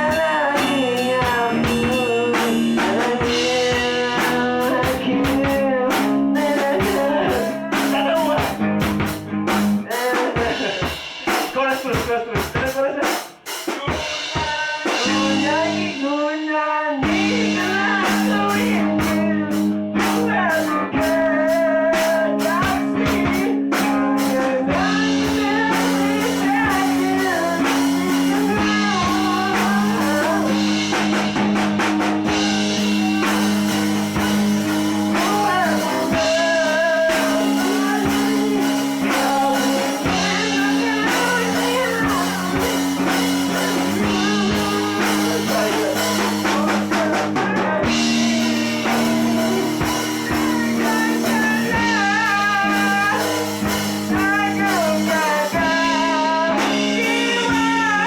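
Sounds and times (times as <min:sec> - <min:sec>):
drum kit: 0:00.0 - 0:58.0
rock song with electric guitar: 0:00.0 - 0:58.0
person singing wavering melody: 0:14.9 - 0:31.0, 0:35.0 - 0:58.0.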